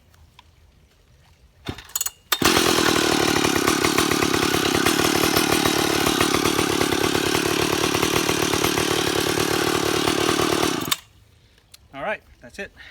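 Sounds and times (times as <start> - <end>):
chainsaw starting and running: 1.7 - 11.1.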